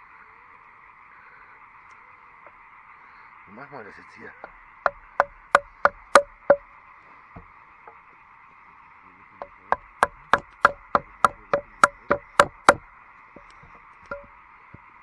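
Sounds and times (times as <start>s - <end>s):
frogs chorus: 0.0s - 15.0s
sharp knocks: 4.4s - 6.7s, 7.4s - 8.0s, 9.4s - 14.9s.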